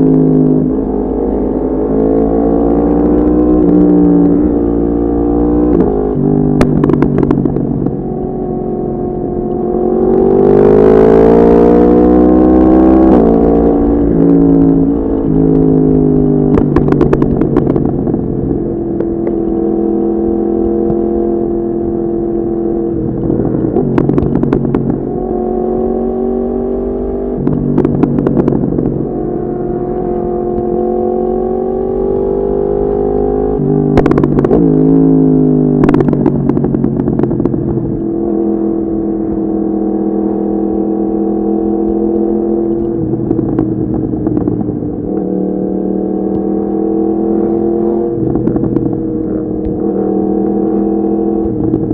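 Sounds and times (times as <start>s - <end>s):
motorcycle engine while riding: 0.0s - 51.9s
exhaust cracks: 13.0s - 19.6s, 22.9s - 25.3s.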